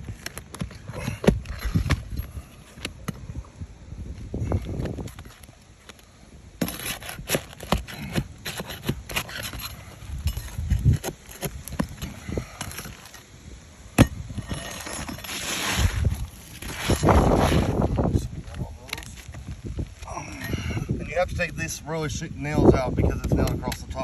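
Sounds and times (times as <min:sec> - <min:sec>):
hand tools clicking and scraping shingles: 0:00.0 - 0:03.2, 0:04.6 - 0:17.8.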